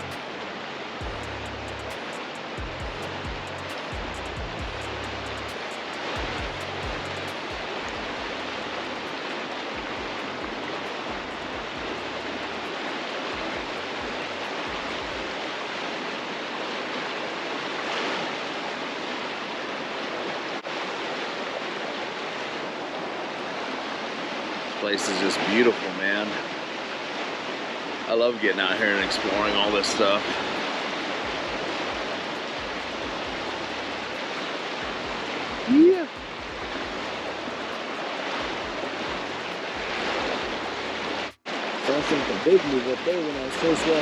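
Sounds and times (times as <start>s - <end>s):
music bass line: 0.0s - 0.2s, 1.0s - 9.0s, 9.8s - 12.7s, 31.3s - 34.2s, 34.8s - 37.8s
flowing water rushing: 0.0s - 44.0s.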